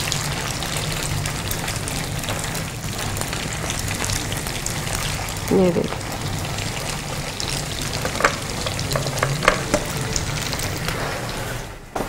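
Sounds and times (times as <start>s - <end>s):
oil sizzling: 0.0s - 12.0s
sharp pops and crackles: 7.9s - 10.0s.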